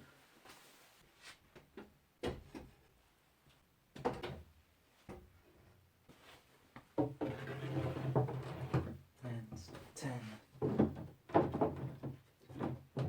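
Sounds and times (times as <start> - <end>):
wooden frames knocking and scraping: 6.9 - 9.0, 10.5 - 13.0
wooden clatter: 10.6 - 13.0.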